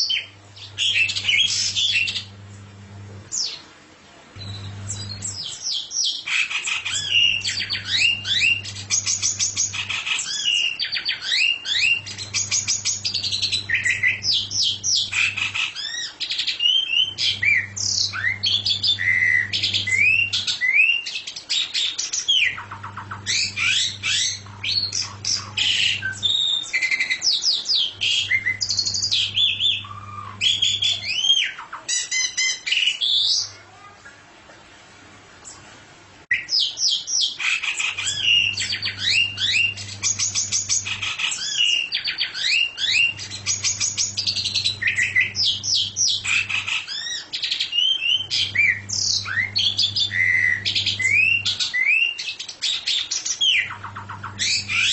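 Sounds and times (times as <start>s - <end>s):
songbird singing: 0.0s - 2.4s, 4.4s - 33.6s, 36.3s - 54.9s
low hum: 4.4s - 5.4s, 17.0s - 20.5s, 22.6s - 26.4s, 27.9s - 31.1s, 53.8s - 54.9s.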